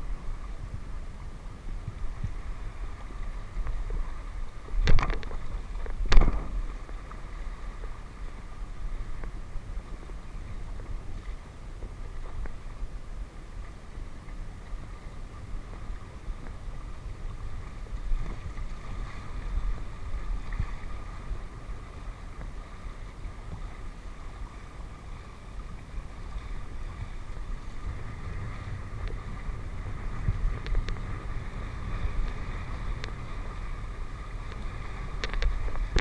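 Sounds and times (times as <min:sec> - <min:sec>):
wind on microphone: 0:00.0 - 0:36.0
steady low rumble: 0:26.6 - 0:36.0.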